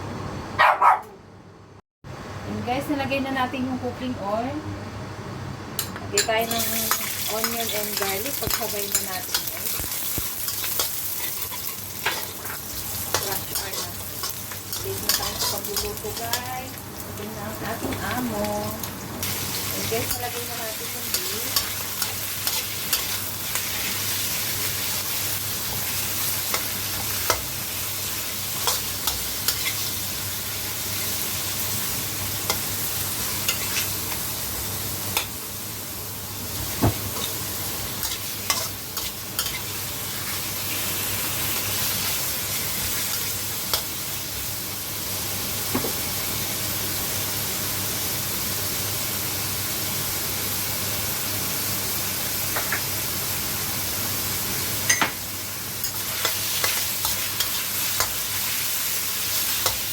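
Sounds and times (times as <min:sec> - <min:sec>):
spatula clicking and scraping pan: 0:05.8 - 0:16.5, 0:21.0 - 0:23.9, 0:28.6 - 0:29.8, 0:33.5 - 0:34.2, 0:38.0 - 0:39.7, 0:55.8 - 0:58.2, 0:59.4 - 0:59.9
meat sizzling in hot oil: 0:06.4 - 0:59.9.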